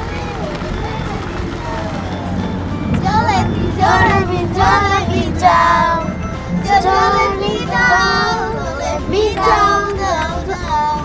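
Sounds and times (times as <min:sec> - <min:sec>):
steady low hum: 0:00.0 - 0:10.0
music: 0:00.0 - 0:11.0
child singing: 0:02.9 - 0:11.0.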